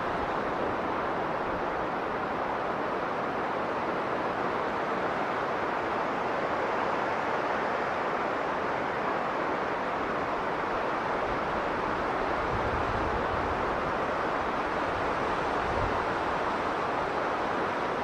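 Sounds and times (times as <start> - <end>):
strong blizzard wind: 0.0 - 18.0.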